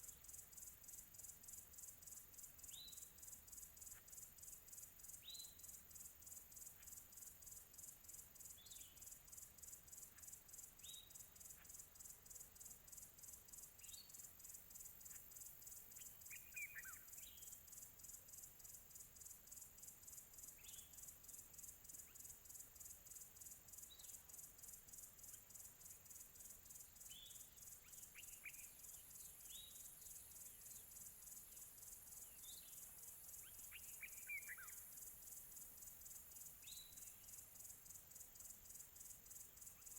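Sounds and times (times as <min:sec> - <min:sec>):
insect trill: 0:00.0 - 0:39.9
bird chirps: 0:16.0 - 0:17.5, 0:20.6 - 0:21.0, 0:27.0 - 0:31.0, 0:32.1 - 0:34.9, 0:36.6 - 0:37.4.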